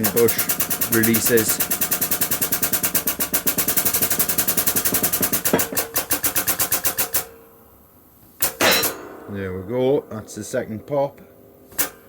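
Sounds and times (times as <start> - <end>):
press jack pumping chatter: 0.0 - 7.2.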